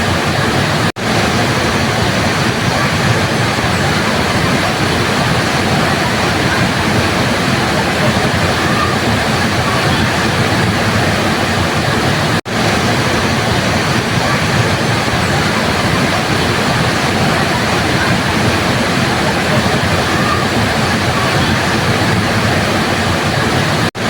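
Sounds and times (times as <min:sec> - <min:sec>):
waterfall roaring: 0:00.0 - 0:24.0.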